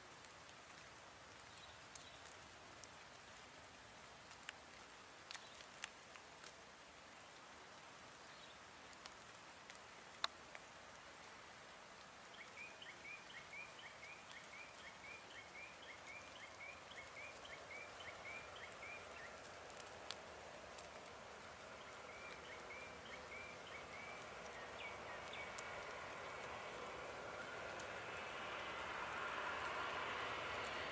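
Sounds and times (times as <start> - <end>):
faint outdoor hiss: 0.0 - 30.9
bird chirping: 12.3 - 19.4, 21.8 - 28.2.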